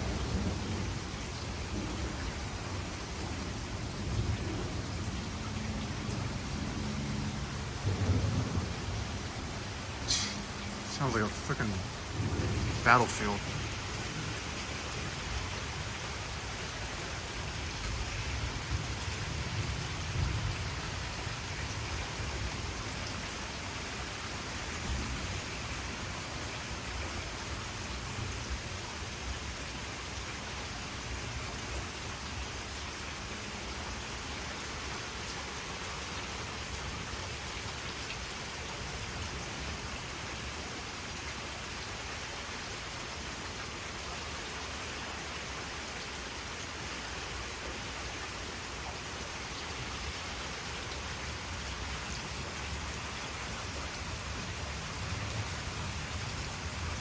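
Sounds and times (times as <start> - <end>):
heavy rain pouring: 0.0 - 57.0
thunder rumbling: 3.2 - 15.4.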